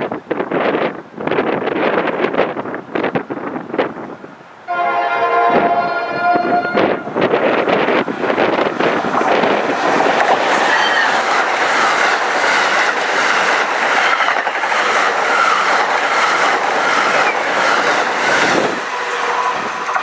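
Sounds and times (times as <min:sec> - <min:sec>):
wavering high squeal: 0:05.2 - 0:07.2, 0:10.6 - 0:11.3.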